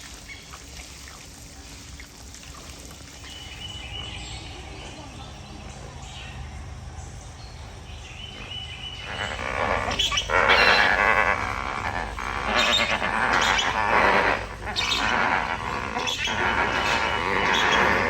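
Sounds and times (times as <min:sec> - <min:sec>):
flamingos honking chorus: 0:08.4 - 0:18.0.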